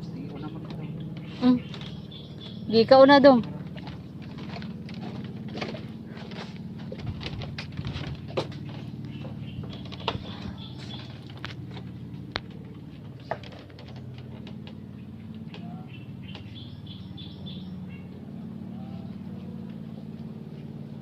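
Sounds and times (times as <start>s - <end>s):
steady low hum: 0.0s - 21.0s
faint bird calls: 8.7s - 11.8s, 13.2s - 20.6s.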